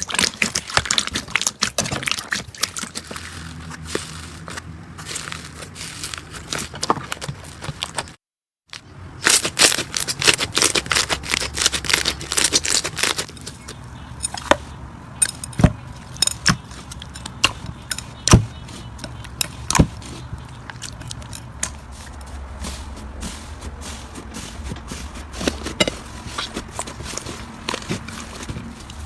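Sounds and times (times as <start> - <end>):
slime crackling and popping: 0.0 - 4.5, 9.2 - 13.3.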